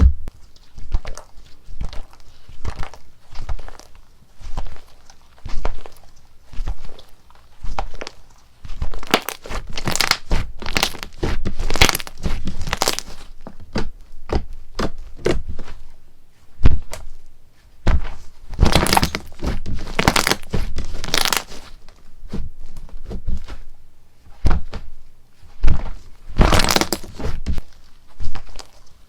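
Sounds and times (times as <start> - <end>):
slime squeezed by hand popping: 9.0 - 13.2, 18.6 - 21.6, 26.4 - 27.4.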